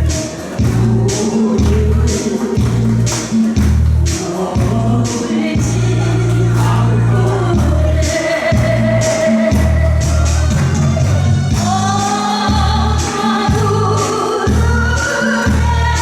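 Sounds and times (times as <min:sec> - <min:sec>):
band playing: 0:00.0 - 0:16.0
bass: 0:00.0 - 0:16.0
person singing: 0:00.0 - 0:16.0
steady drum beat: 0:00.0 - 0:16.0.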